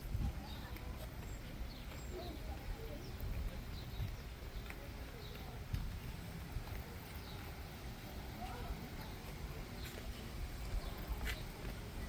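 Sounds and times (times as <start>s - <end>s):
faint distant voices: 0.0s - 12.0s.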